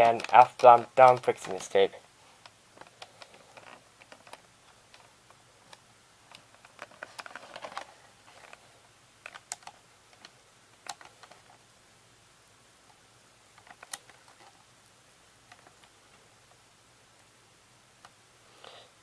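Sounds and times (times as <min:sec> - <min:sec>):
plastic clicks: 0:00.0 - 0:01.8, 0:02.4 - 0:08.6, 0:09.2 - 0:11.6, 0:13.6 - 0:14.6.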